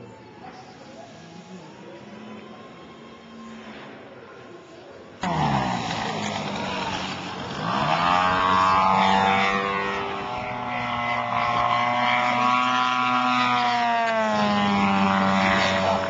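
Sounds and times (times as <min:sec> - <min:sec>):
model aircraft motor whine: 0:05.2 - 0:16.0.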